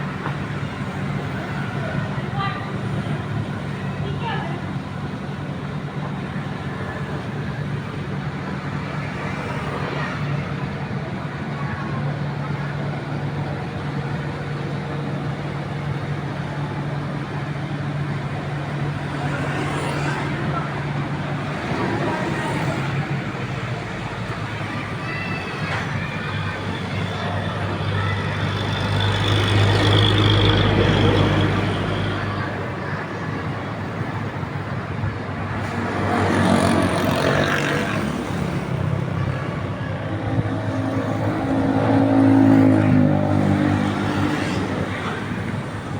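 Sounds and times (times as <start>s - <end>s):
constant noisy rush: 0.0s - 45.9s
diesel engine humming: 0.0s - 45.9s.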